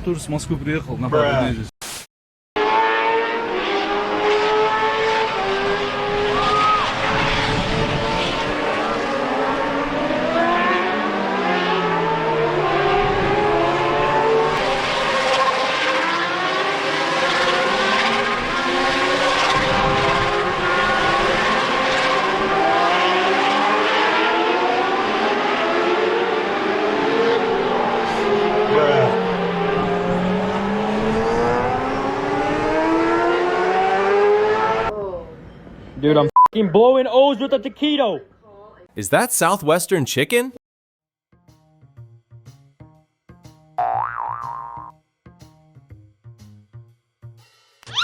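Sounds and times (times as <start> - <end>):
car engines revving and passing: 2.6 - 34.9.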